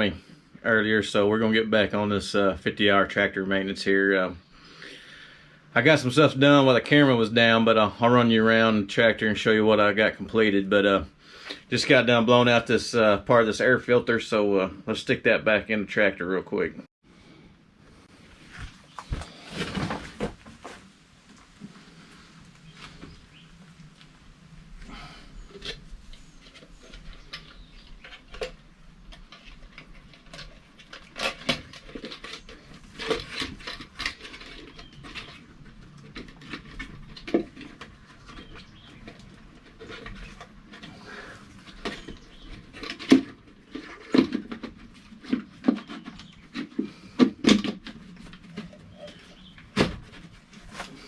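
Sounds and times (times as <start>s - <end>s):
air filter clicks and rattles: 24.9s - 51.0s.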